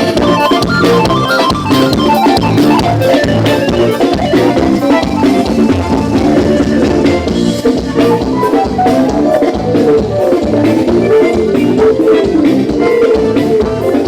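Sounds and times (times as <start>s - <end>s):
drum kit beat: 0.0s - 14.0s
instrumental worship band music: 0.0s - 14.0s.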